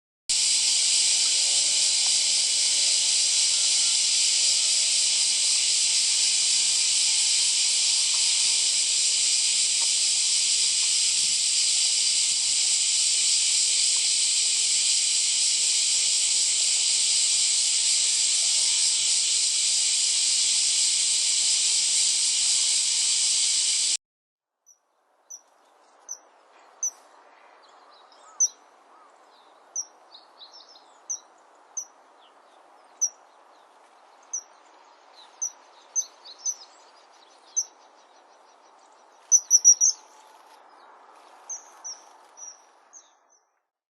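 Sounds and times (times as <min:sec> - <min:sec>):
shrill insect chorus: 0:00.3 - 0:24.0, 0:39.2 - 0:40.0
high bird chirps: 0:39.2 - 0:40.0.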